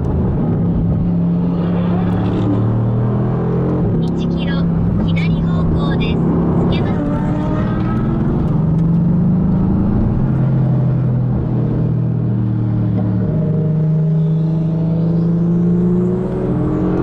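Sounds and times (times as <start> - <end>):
car engine running: 3.6 - 11.8.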